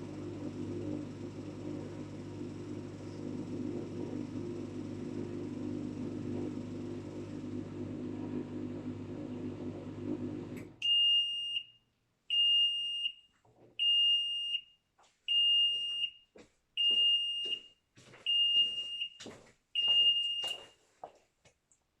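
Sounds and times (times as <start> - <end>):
washing machine humming: 0.0 - 10.8.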